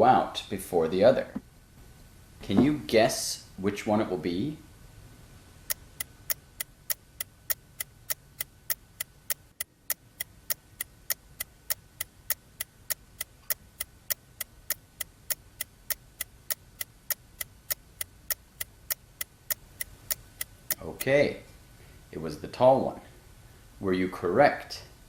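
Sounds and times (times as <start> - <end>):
clock ticking: 5.7 - 21.2.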